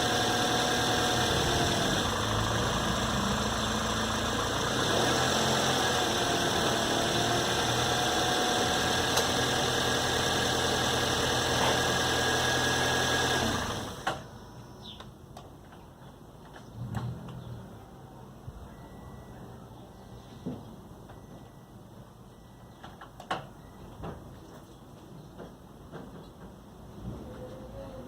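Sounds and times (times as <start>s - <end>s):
car engine whining: 0.0s - 14.4s.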